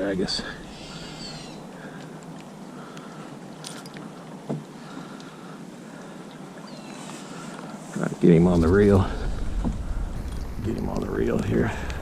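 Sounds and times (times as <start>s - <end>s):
hiss of rain and water: 4.7s - 12.0s
low knock: 9.2s - 10.9s.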